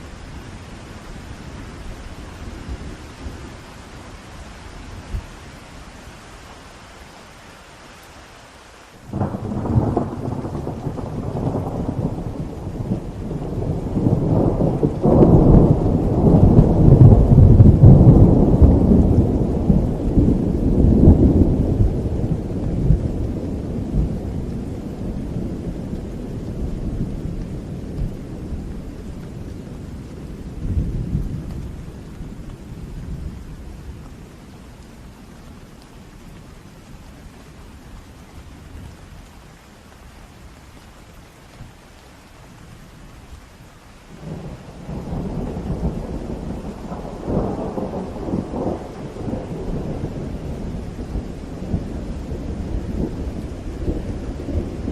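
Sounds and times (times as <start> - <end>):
steady rain: 0.0 - 54.9
rolling thunder: 9.1 - 33.9, 44.2 - 54.9.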